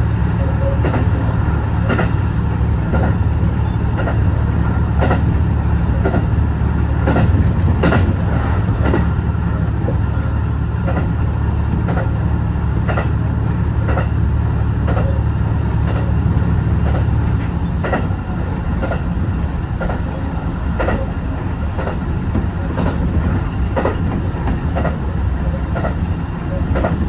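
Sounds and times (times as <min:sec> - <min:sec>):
railcar low rumble: 0:00.0 - 0:27.0
wheels clicking over rail joints: 0:16.8 - 0:27.0.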